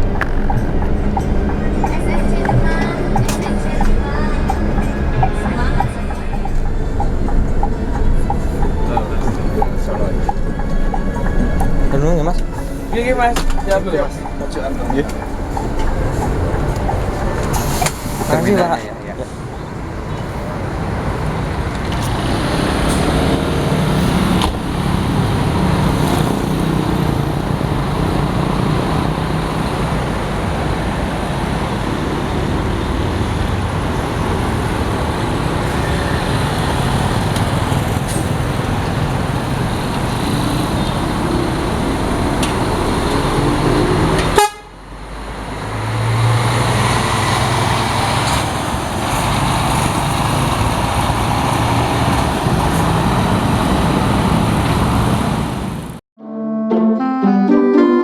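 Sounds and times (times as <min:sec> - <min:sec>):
engine running steadily: 0:00.0 - 0:44.7
road traffic noise: 0:00.0 - 0:56.0.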